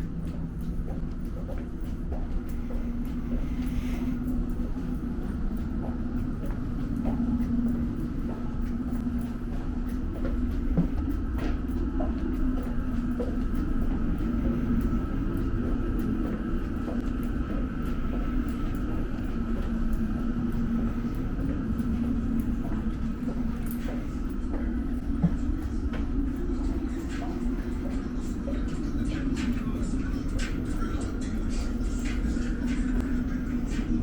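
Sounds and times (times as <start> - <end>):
train rumbling inside carriage: 0.0 - 34.0.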